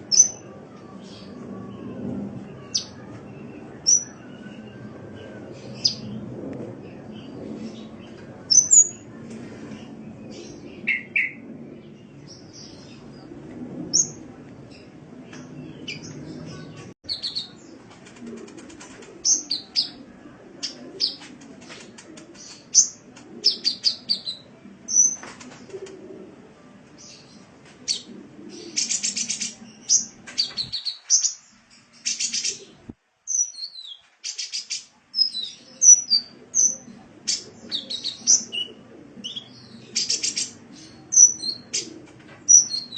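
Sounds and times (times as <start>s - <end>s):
sunbird chirping and trilling: 28.8s - 36.9s.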